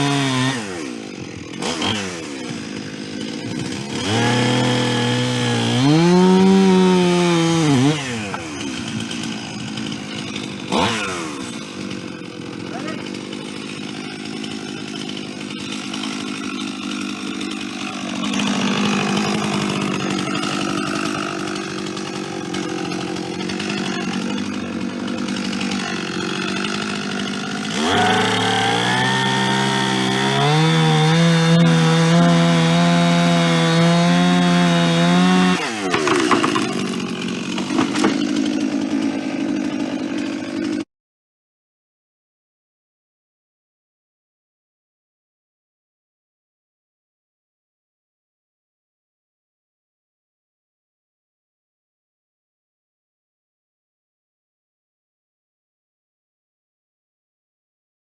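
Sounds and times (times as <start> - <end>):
chainsaw engine revving: 0.0 - 40.9.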